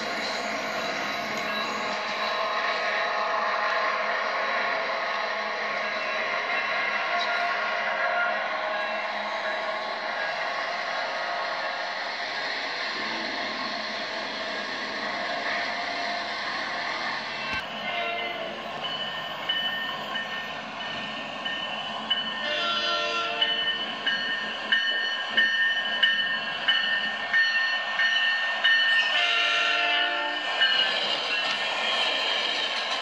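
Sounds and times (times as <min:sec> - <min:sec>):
train wheels clattering: 0:17.4 - 0:33.0
train horn blasts: 0:22.4 - 0:23.7, 0:29.1 - 0:30.4.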